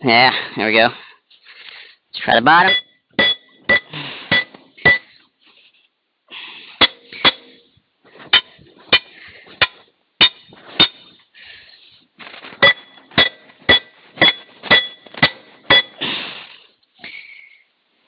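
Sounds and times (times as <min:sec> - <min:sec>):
hammer striking steel: 0:02.6 - 0:05.1, 0:06.8 - 0:07.7, 0:08.3 - 0:11.1, 0:12.6 - 0:16.0.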